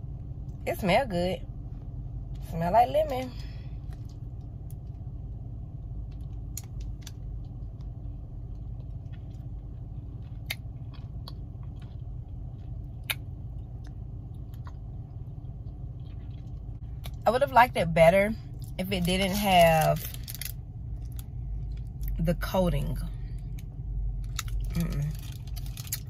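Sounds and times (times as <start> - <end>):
car engine idling hum: 0.0 - 26.0
person chewing crunchy bar: 8.4 - 17.2, 24.2 - 26.0.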